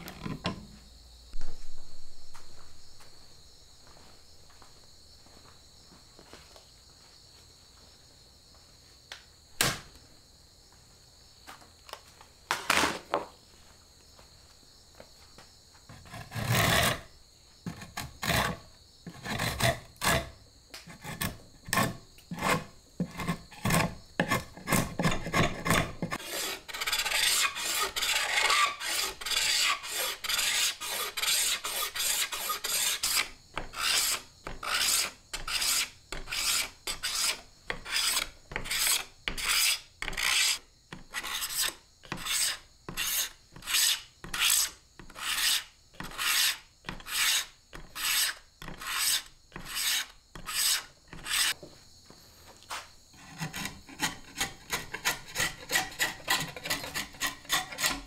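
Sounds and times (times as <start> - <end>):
hand tool rasp scraping: 15.9 - 17.1, 17.7 - 51.6, 53.2 - 58.0.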